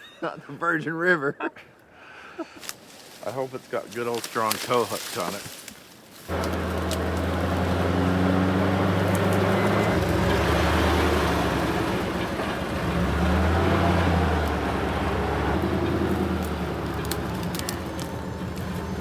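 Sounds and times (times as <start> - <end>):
truck engine revving: 6.3 - 19.0.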